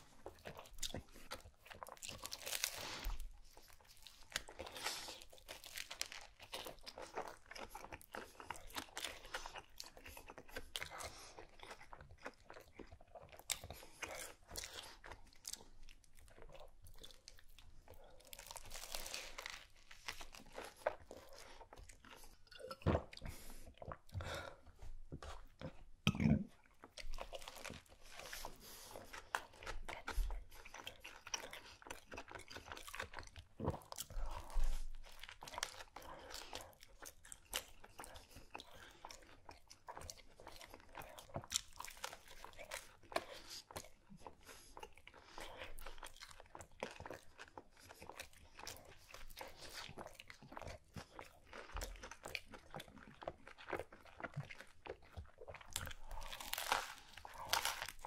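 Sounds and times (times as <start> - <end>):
crunching of crusty bread: 0.1 - 22.4, 26.9 - 58.0
wet chewing clicks: 26.5 - 58.0.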